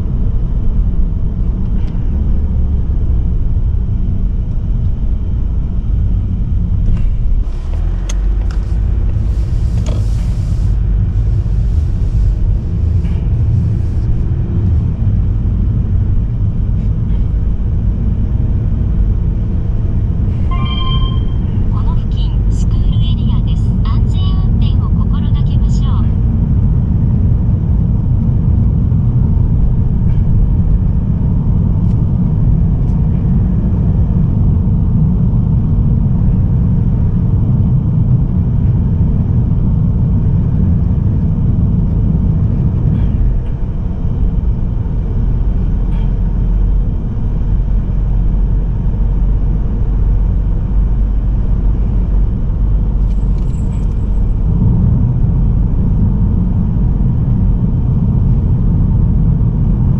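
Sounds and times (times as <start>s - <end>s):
car cruising low rumble: 0.0s - 59.9s.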